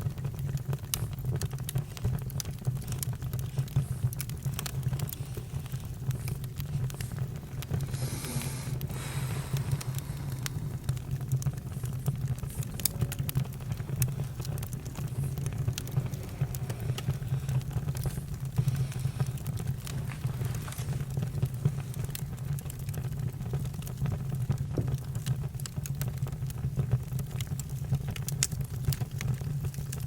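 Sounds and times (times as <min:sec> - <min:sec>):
campfire crackling and popping: 0:00.0 - 0:30.0
low rumble of fire: 0:00.0 - 0:30.0.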